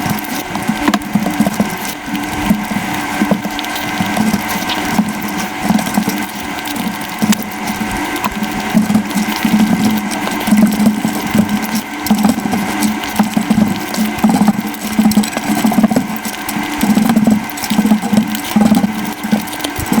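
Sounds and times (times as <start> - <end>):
sped-up chewing and mouth sounds: 0.0 - 20.0.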